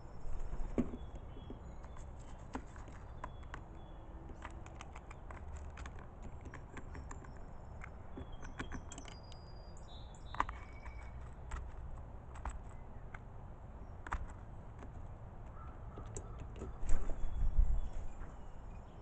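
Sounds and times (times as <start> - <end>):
small sharp clicks and taps: 1.2 - 9.5, 10.2 - 13.3, 13.9 - 16.8.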